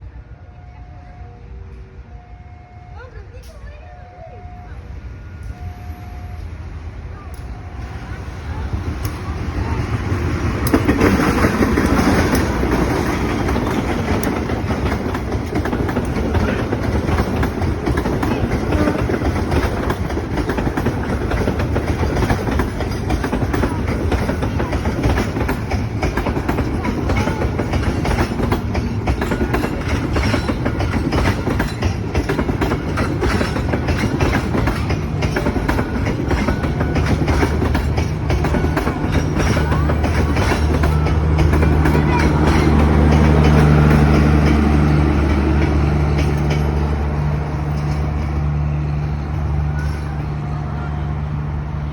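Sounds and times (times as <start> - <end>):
passenger train rumbling: 0.0 - 51.9
wheels clicking over rail joints: 7.2 - 51.9.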